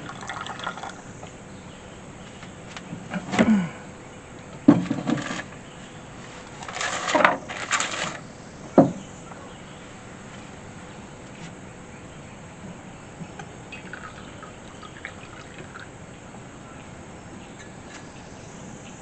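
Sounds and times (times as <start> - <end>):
knocks and clunks: 4.6 - 5.4
rustling and scraping: 4.7 - 8.3, 10.2 - 10.6, 11.2 - 11.6.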